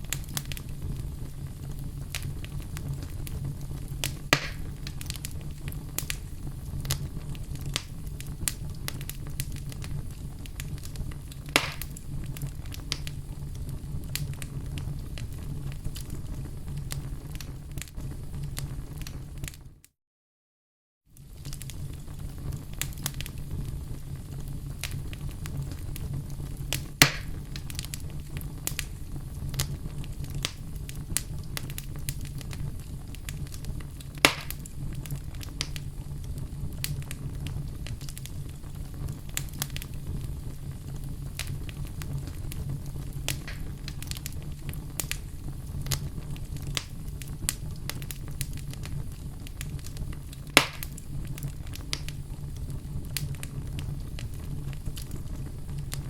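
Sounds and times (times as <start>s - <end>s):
sharp fire pops: 0.0s - 19.6s, 21.2s - 56.0s
fire crackling in fireplace: 0.0s - 19.9s, 21.1s - 56.0s.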